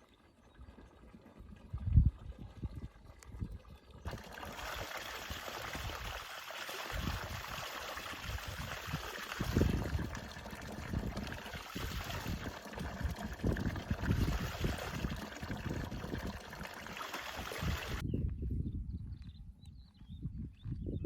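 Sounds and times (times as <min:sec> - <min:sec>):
water rushing: 0:04.0 - 0:18.0.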